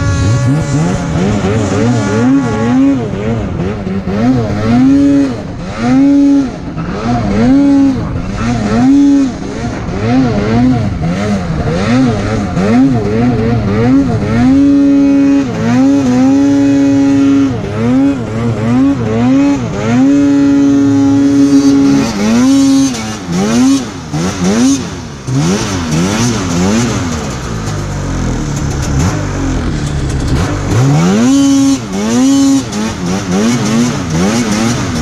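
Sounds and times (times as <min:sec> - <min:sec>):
snowmobile engine revving: 0:00.0 - 0:35.0.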